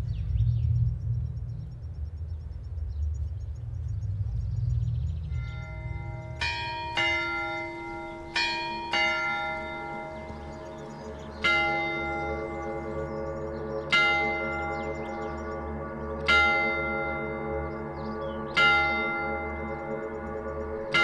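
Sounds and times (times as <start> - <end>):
low steady hum: 0.0 - 16.1
bells ringing: 5.3 - 15.4, 16.2 - 17.8, 18.6 - 21.0.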